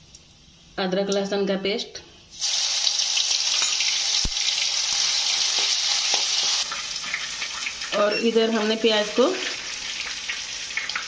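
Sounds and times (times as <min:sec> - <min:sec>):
paste sizzling in hot oil: 0:02.3 - 0:11.0.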